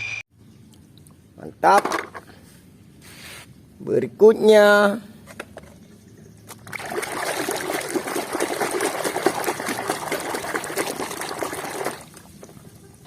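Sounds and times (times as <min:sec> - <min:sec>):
water splashing: 0:06.6 - 0:12.8.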